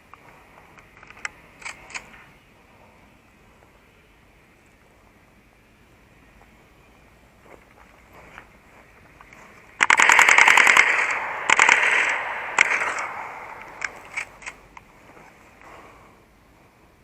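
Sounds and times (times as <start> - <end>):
airsoft guns firing: 9.8 - 14.7.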